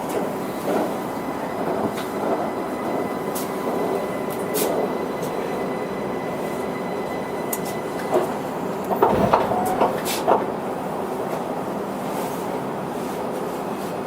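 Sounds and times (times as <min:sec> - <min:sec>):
train hum: 0:00.0 - 0:12.9.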